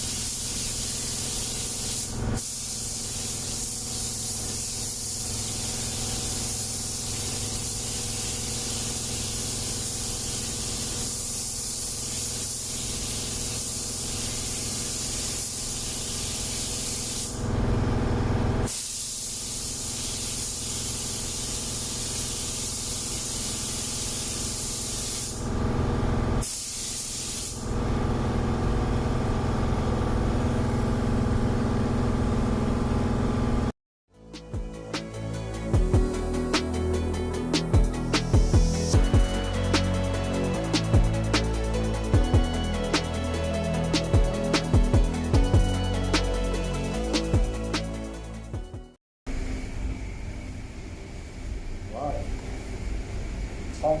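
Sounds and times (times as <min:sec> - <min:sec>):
paint spray gun hissing: 0:00.0 - 0:17.5, 0:18.7 - 0:25.5, 0:26.4 - 0:27.7.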